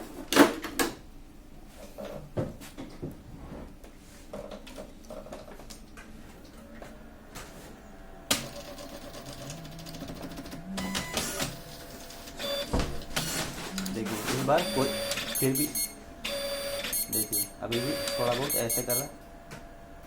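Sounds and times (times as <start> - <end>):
printer motor whirring: 8.3 - 20.0.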